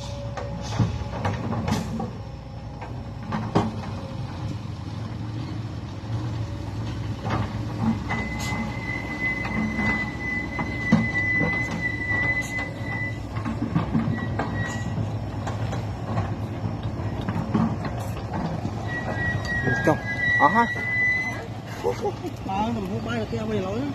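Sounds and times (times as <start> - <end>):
dump truck engine rumble: 0.0 - 23.9
knocks and rattles: 9.4 - 20.1
high-pitched squeal: 18.8 - 21.5.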